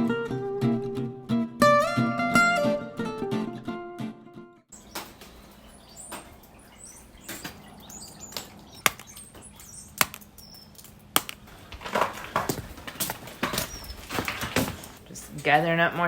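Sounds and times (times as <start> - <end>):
sharp clicks and knocks: 4.8 - 15.0
snow scraping and crunching: 11.5 - 15.4.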